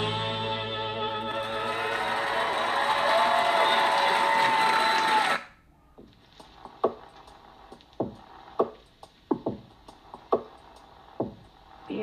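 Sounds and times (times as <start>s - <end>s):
drum hits from speaker: 6.0s - 7.1s, 7.7s - 10.6s, 11.2s - 11.6s.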